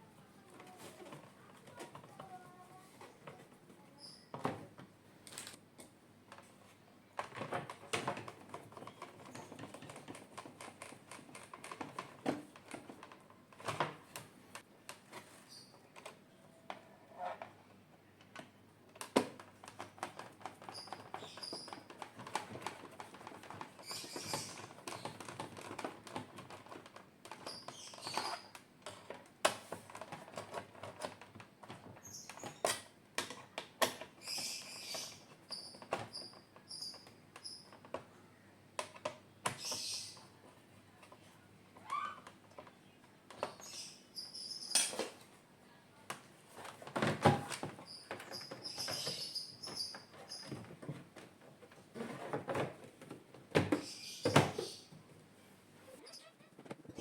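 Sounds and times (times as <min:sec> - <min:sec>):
plastic parts clicking and tapping: 0:07.2 - 0:15.2, 0:18.2 - 0:34.4, 0:38.8 - 0:40.3.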